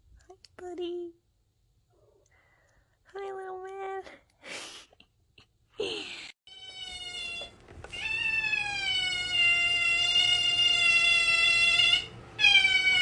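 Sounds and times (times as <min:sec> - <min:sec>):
cat meowing: 0:06.5 - 0:13.0.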